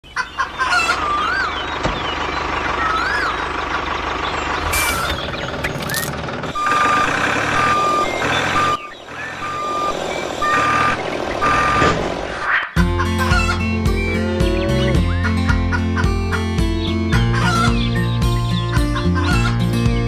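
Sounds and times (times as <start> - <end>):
vehicle reversing alarm beeping: 4.3 - 12.1.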